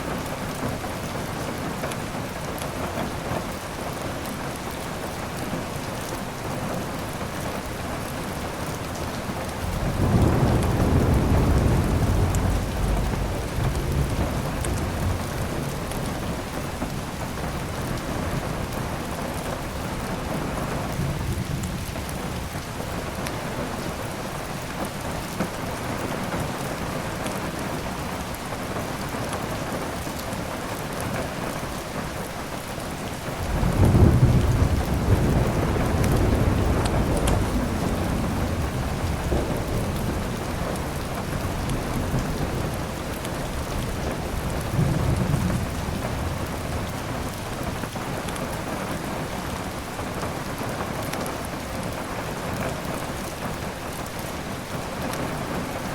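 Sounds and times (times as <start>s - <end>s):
heavy rain: 0.0s - 55.9s
thunder rumbling: 7.7s - 23.9s, 33.3s - 52.0s.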